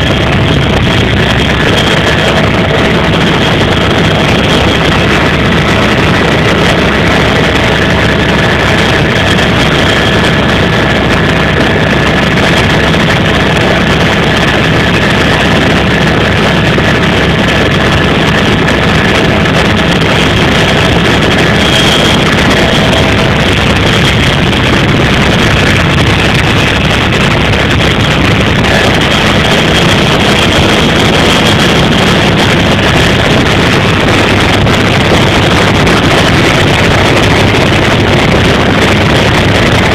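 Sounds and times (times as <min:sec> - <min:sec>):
helicopter engine and rotor noise: 0:00.0 - 0:39.9.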